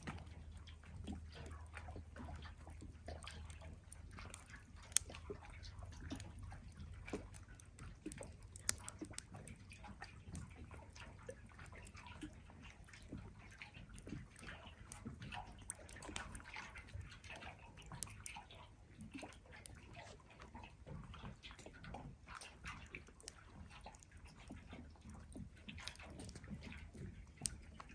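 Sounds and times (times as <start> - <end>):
lake water lapping: 0.0 - 27.9
campfire crackling: 2.8 - 5.2, 6.2 - 9.3.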